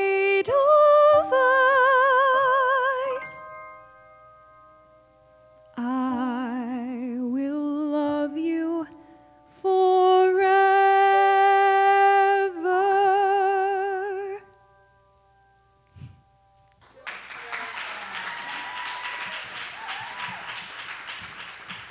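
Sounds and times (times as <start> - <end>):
woman singing a soft ballad: 0.0 - 3.5, 5.7 - 14.5.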